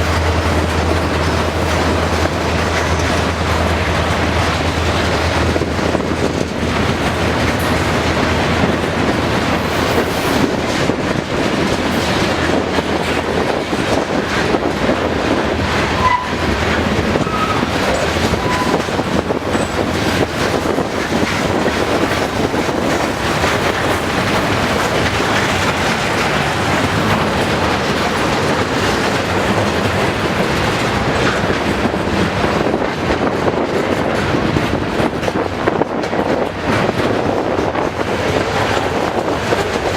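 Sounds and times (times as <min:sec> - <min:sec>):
freight train wheels on rails: 0:00.0 - 0:39.9.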